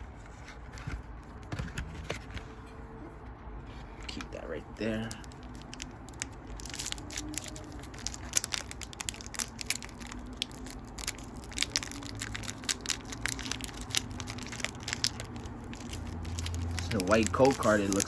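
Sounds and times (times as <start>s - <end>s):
foil wrapper crinkling and tearing: 4.1s - 18.0s.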